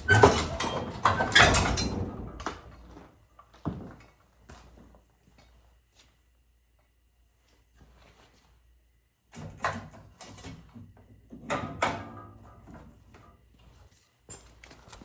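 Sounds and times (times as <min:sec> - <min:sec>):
metallic creak: 0:00.0 - 0:02.5.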